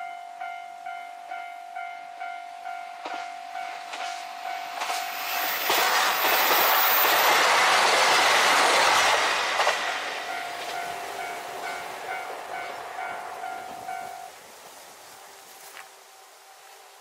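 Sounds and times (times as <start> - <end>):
level-crossing alarm ringing: 0.0 - 7.0, 10.2 - 14.4
diesel train passing: 0.0 - 17.0.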